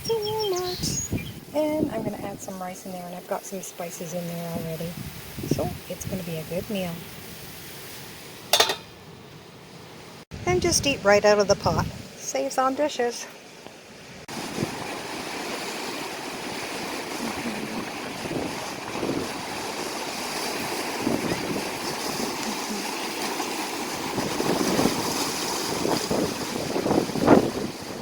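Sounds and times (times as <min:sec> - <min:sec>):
wind buffeting microphone: 0:00.0 - 0:02.7, 0:04.2 - 0:07.6, 0:10.3 - 0:12.2, 0:14.3 - 0:15.6, 0:16.5 - 0:28.0.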